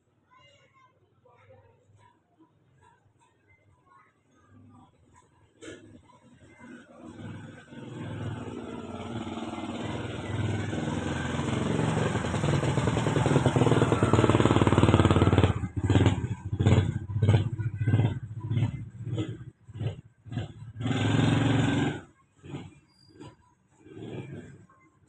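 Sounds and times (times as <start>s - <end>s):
engine revving in bursts: 7.0s - 24.7s.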